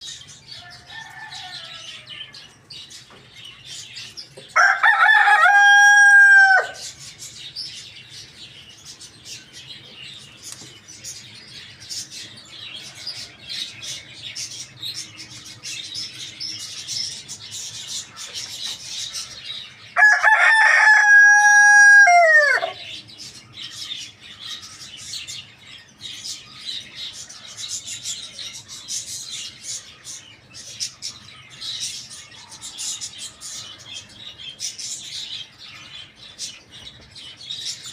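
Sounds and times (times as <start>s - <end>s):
rooster crowing: 0.6s - 2.5s, 4.6s - 6.9s, 20.0s - 22.9s.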